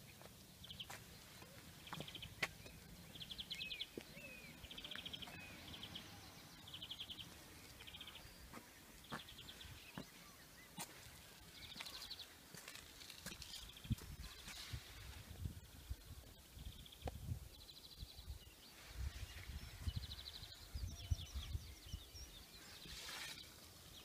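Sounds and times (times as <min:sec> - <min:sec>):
small birds trilling: 0:00.0 - 0:24.0
sliding bird chirps: 0:22.7 - 0:23.7.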